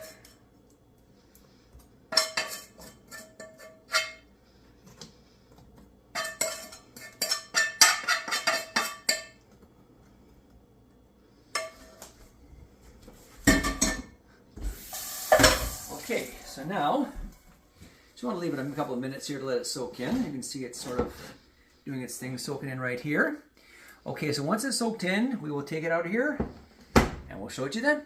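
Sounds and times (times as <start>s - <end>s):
spoon clinking against a pot: 6.1s - 9.4s.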